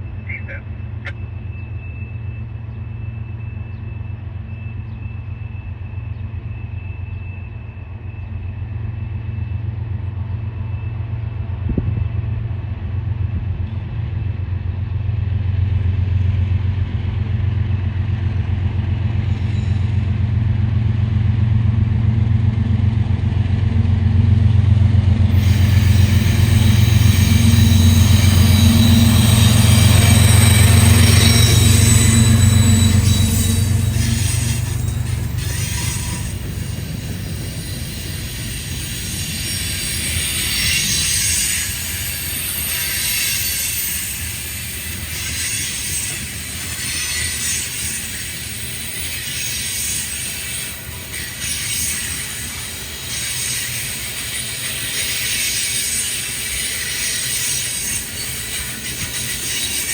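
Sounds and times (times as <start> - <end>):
diesel train engine rumble: 0.0 - 59.9
wheels hissing on rails: 13.8 - 59.9.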